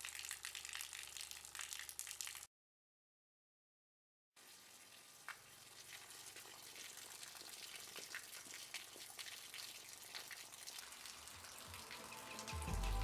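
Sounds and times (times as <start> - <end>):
falling water splashing: 4.4 - 13.0.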